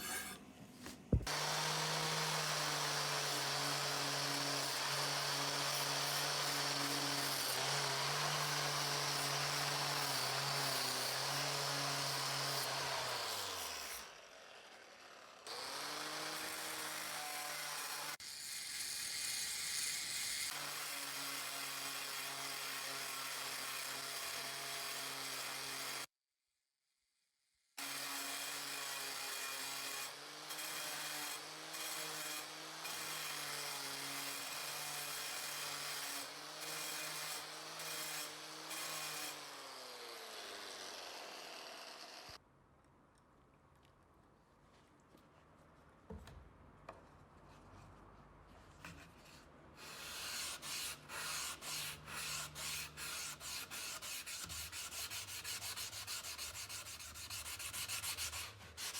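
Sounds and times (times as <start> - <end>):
blade scraping: 0.0 - 1.6.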